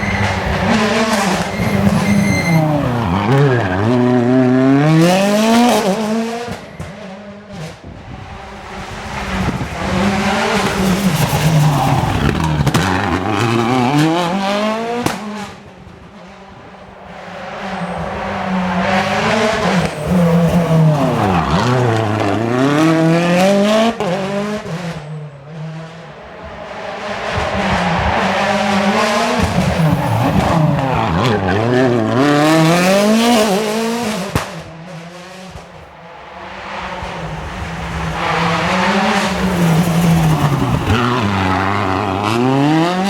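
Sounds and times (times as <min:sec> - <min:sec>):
rally cars revving past: 0:00.0 - 0:43.0.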